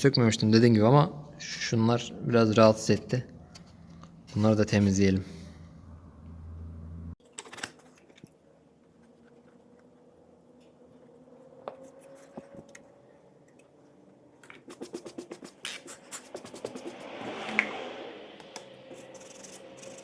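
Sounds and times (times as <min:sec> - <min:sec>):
scratchy rubbing strokes: 0:14.6 - 0:17.6, 0:18.8 - 0:20.0.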